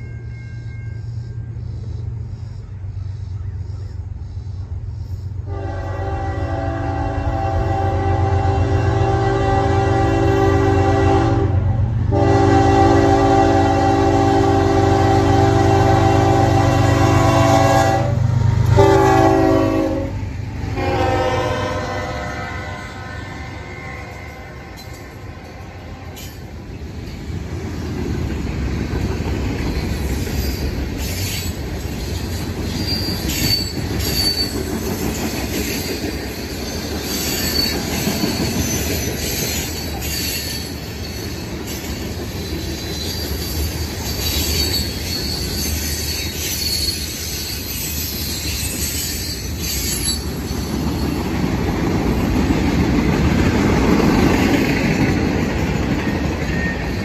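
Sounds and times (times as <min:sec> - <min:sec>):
freight train wheels rumbling: 0:00.0 - 0:57.0
high-pitched wheel squeal: 0:29.9 - 0:34.8, 0:36.6 - 0:51.3.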